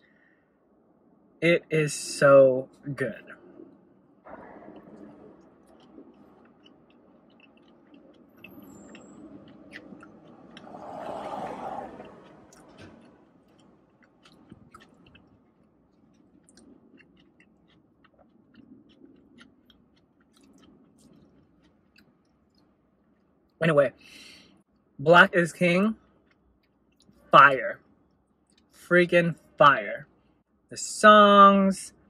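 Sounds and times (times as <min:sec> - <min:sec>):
close-up chewing: 0:04.3 - 0:23.6, 0:26.0 - 0:28.8.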